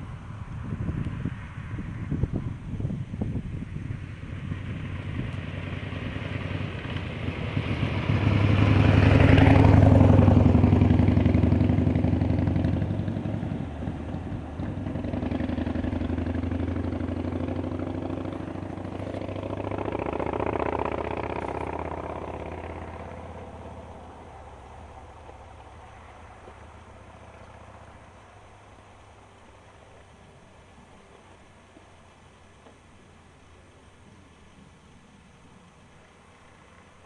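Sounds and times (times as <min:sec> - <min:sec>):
vehicles driving past: 0:00.0 - 0:37.0.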